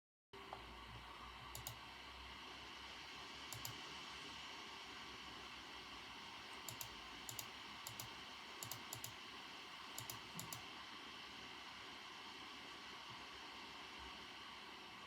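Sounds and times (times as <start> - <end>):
faint steady hiss: 0.4 - 15.0
keyboard keys clicking: 3.6 - 3.8, 6.7 - 9.2, 10.0 - 10.6.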